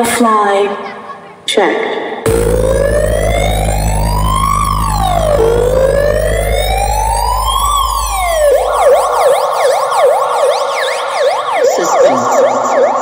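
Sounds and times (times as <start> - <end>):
deep bass drone: 2.3 - 9.6
siren wailing and yelping: 2.3 - 13.0.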